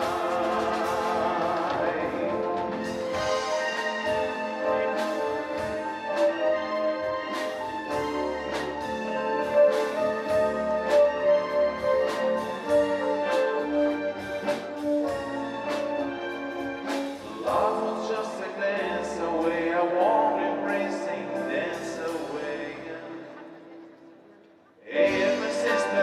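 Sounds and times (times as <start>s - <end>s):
live band playing a ballad: 0.0s - 24.0s, 24.9s - 26.0s.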